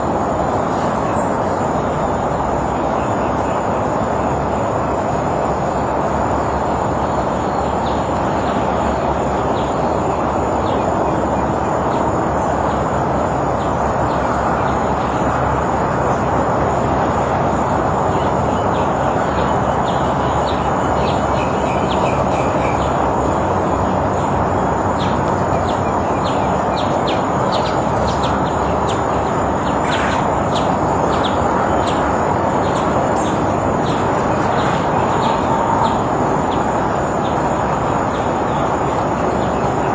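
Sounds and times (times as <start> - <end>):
loud steady rushing noise: 0.0 - 39.9
small birds chirping: 18.0 - 39.9.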